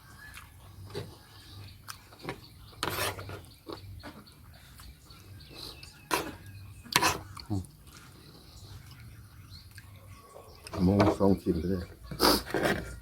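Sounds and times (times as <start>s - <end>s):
person chewing food: 4.6s - 10.0s.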